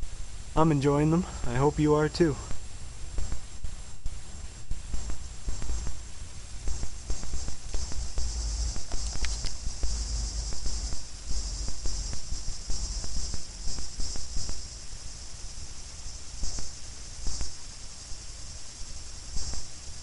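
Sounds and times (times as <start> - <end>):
cicadas buzzing: 0.0 - 20.0
low rumble: 2.5 - 15.5
faint clicks: 6.7 - 11.0.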